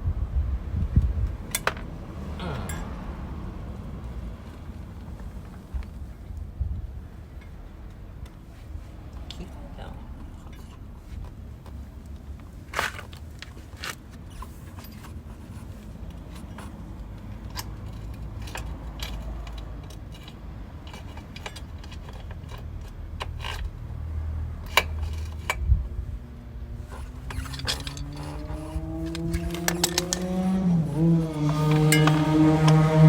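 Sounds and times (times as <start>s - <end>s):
light metallic clicks and rattles: 1.4s - 2.0s, 7.3s - 25.8s, 26.7s - 33.0s.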